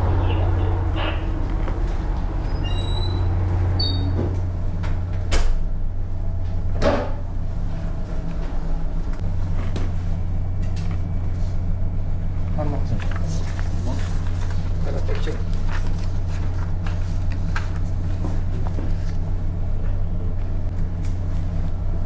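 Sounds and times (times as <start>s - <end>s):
low engine hum: 0.0s - 22.0s
high-pitched squeaks: 2.4s - 4.2s.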